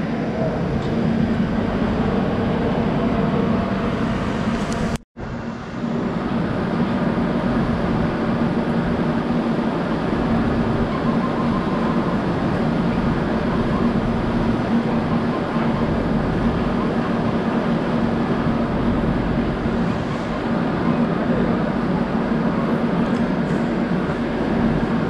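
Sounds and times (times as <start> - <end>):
train rumbling with low drone: 0.0 - 25.0.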